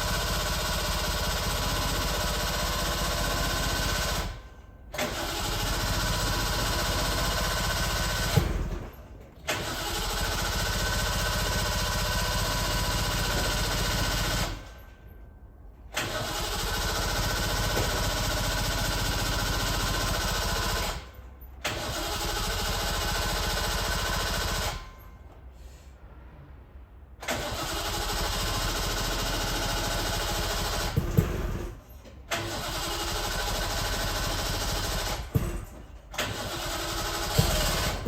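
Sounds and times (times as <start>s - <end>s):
two-stroke engine running: 36.4s - 38.0s.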